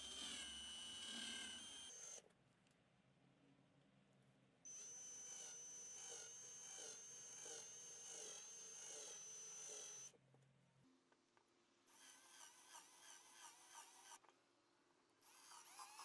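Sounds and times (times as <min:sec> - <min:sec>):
power tool motor whining: 0:00.0 - 0:02.2, 0:04.7 - 0:10.1, 0:15.3 - 0:16.0.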